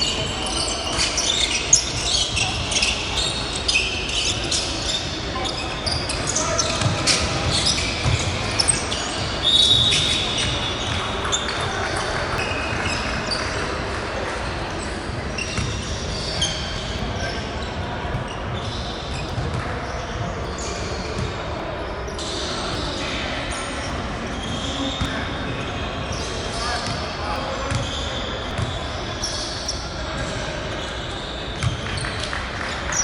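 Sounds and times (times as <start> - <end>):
sneakers squeaking on court: 0.0 - 33.0.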